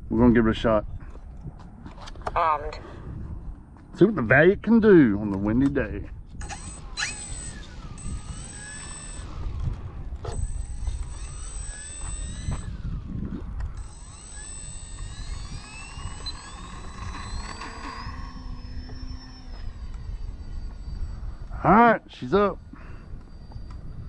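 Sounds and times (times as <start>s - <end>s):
wind rumbling on microphone: 0.0s - 24.0s
electric motor and propeller whining: 5.6s - 24.0s.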